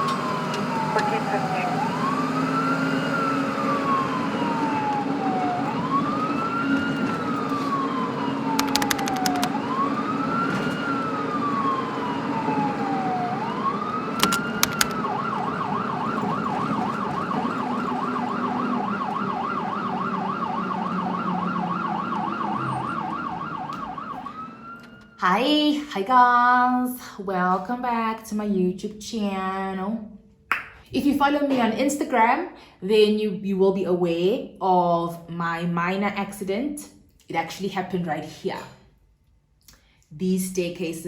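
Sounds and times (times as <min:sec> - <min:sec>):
emergency vehicle siren: 0:00.0 - 0:25.2
sharp clicks: 0:08.6 - 0:09.6, 0:14.2 - 0:15.0.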